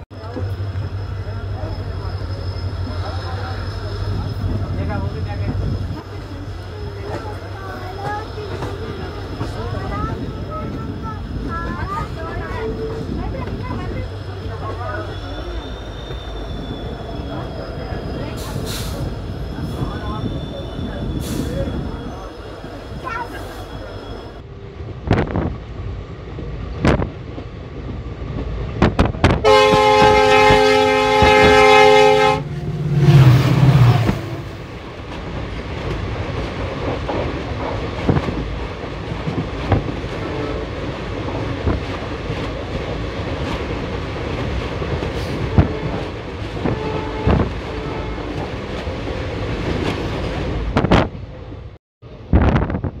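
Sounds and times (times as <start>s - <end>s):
passing locomotive low note: 0.0s - 53.0s
locomotive horn chord: 29.4s - 34.6s.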